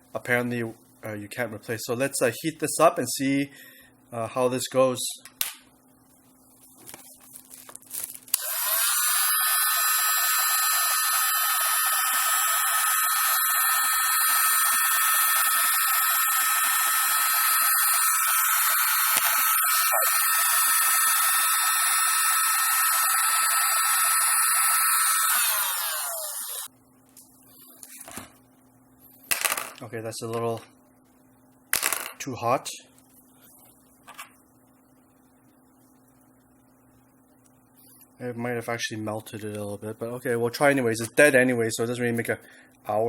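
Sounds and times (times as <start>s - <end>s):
heat gun switch: 8.3s - 26.7s
heat gun whining with rushing air: 8.3s - 26.7s.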